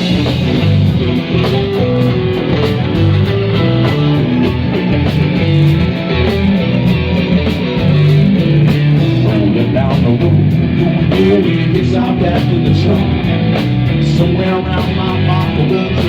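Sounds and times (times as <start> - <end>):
bass notes: 0.0 - 16.0
electric guitar: 0.0 - 16.0.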